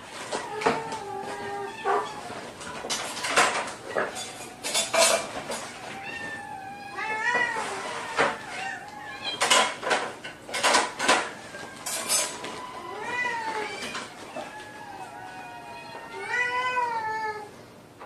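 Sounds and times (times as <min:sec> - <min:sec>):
rustling or clattering bursts: 0:00.0 - 0:06.4, 0:07.1 - 0:14.5
cat meowing: 0:00.3 - 0:02.4, 0:05.8 - 0:09.5, 0:11.3 - 0:17.5.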